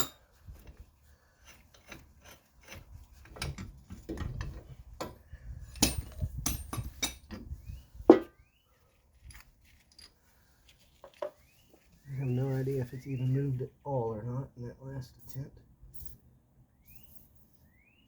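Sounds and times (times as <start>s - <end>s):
metal knocks and scraping: 0.0s - 8.4s.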